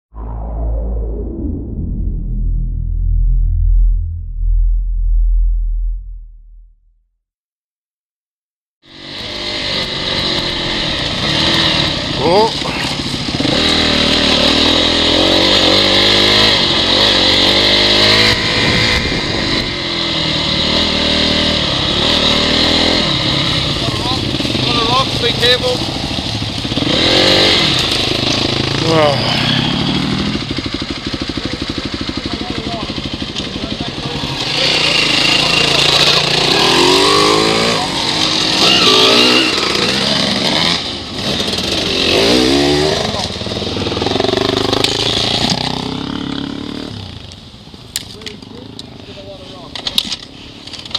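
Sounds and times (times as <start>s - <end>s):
dirt bike engine revving: 8.8s - 47.3s
wind and riding noise: 16.5s - 27.2s.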